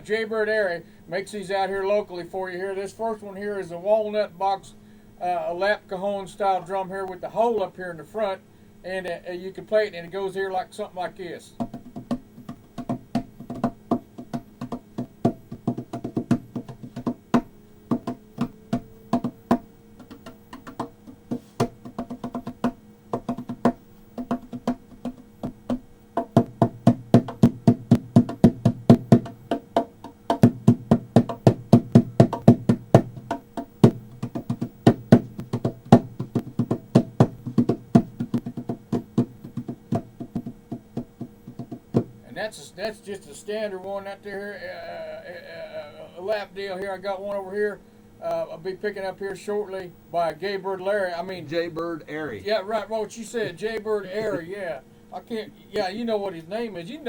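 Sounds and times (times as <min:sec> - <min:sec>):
box drum hand strikes: 0:11.6 - 0:42.2.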